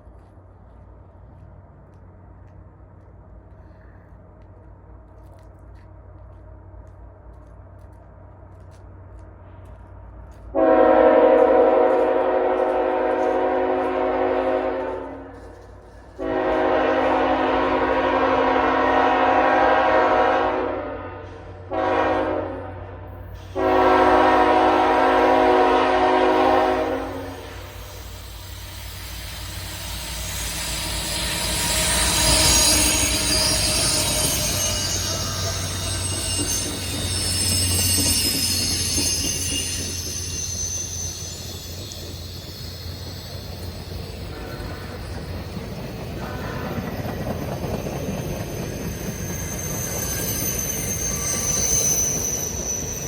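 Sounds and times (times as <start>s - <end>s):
train rumbling: 0.0s - 53.0s
locomotive air horn blasts: 10.5s - 15.6s, 16.2s - 27.8s, 44.3s - 45.0s.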